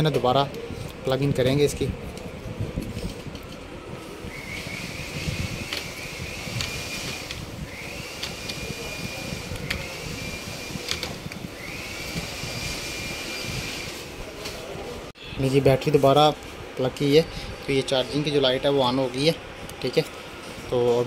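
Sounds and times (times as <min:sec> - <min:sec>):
steady background hum: 0:00.0 - 0:21.0
small electric motor whining: 0:04.0 - 0:14.2
sharp clicks: 0:09.5 - 0:09.9.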